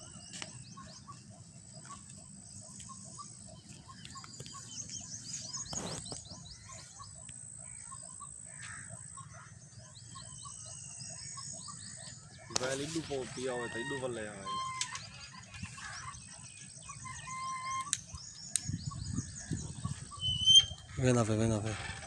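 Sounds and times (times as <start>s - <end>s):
birds chirping: 0.0s - 22.0s
high downward-sweeping bird calls: 0.0s - 22.0s
sharp click: 17.8s - 18.8s.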